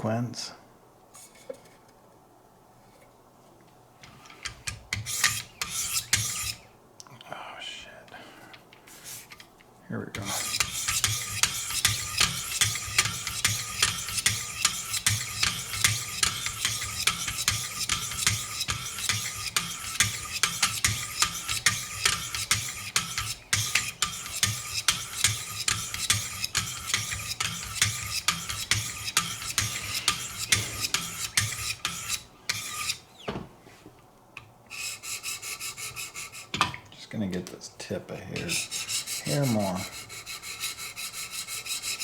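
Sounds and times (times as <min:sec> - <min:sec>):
sharpening stones scraping knife: 0:04.4 - 0:06.6, 0:10.2 - 0:33.0, 0:38.4 - 0:42.0.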